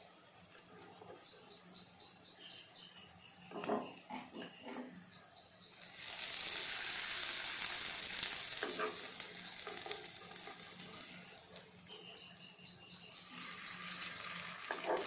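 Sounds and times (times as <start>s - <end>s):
oil sizzling in a pan: 5.7s - 15.0s
metal spoon scraping a pan: 6.2s - 12.0s.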